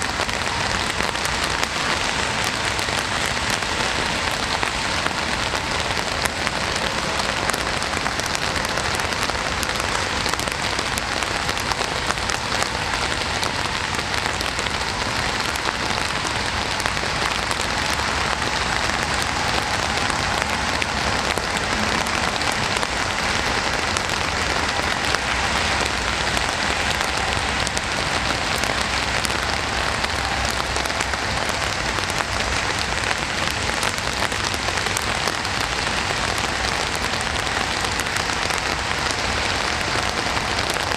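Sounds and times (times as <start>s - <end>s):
rain pattering on a surface: 0.0s - 40.9s.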